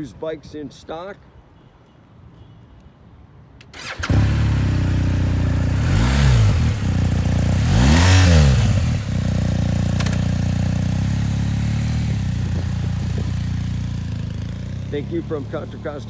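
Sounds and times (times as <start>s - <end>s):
motorcycle engine starting and idling: 3.6s - 16.0s
motorcycle engine revving: 3.8s - 16.0s.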